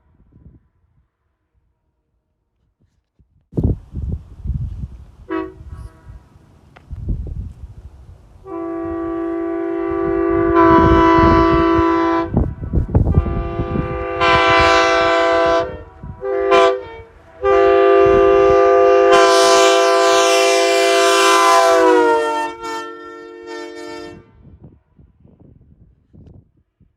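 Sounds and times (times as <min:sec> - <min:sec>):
wind rumbling on microphone: 0:00.0 - 0:01.7, 0:02.6 - 0:22.8, 0:23.5 - 0:26.9
locomotive air horn blasts: 0:05.2 - 0:06.3, 0:08.4 - 0:24.6.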